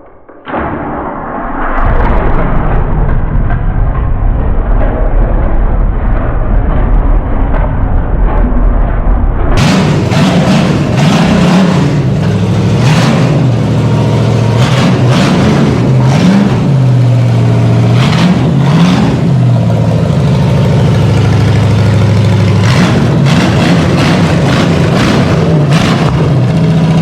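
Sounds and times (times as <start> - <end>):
engine revving: 1.6 - 27.0.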